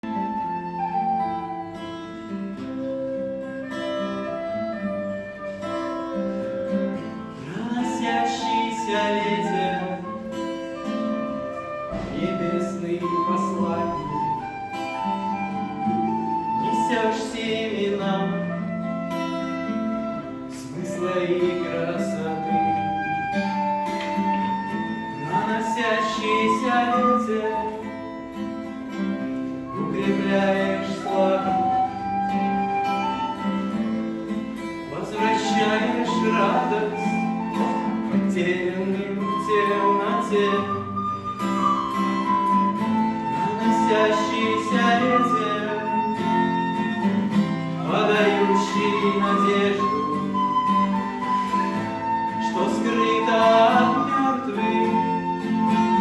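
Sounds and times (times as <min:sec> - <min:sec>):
sustained melody notes: 0:00.0 - 0:16.6
plucked guitar-like accompaniment: 0:00.0 - 0:56.0.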